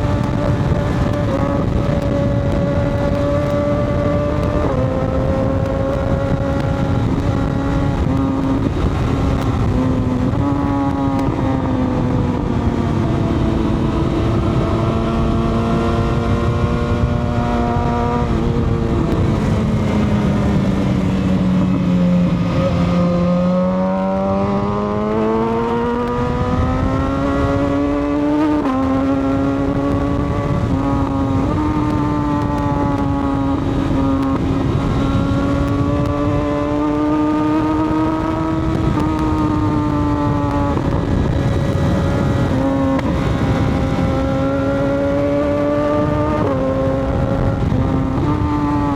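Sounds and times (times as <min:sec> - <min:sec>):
motorcycle engine: 0:00.0 - 0:48.9
rush of wind: 0:00.0 - 0:48.9.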